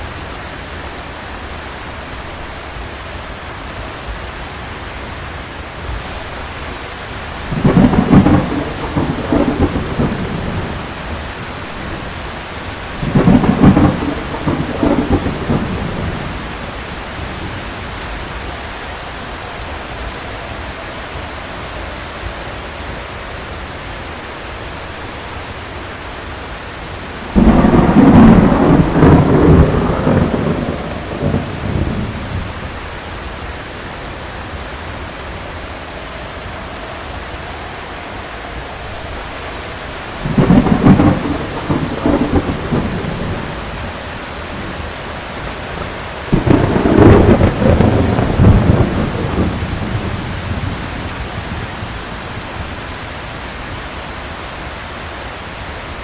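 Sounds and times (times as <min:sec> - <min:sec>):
heavy rain: 0:00.0 - 0:56.0
thunder rolling: 0:06.1 - 0:20.1, 0:26.9 - 0:52.9.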